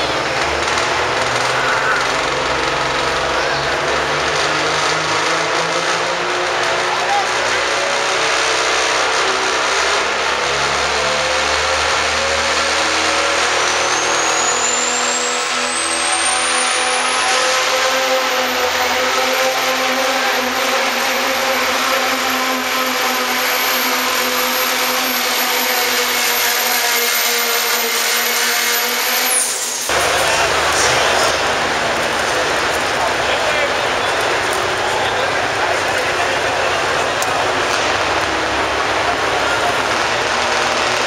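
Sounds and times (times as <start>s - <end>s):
diesel truck engine under full load: 0.0s - 41.0s
high turbo whistle: 13.6s - 19.4s, 21.2s - 31.8s.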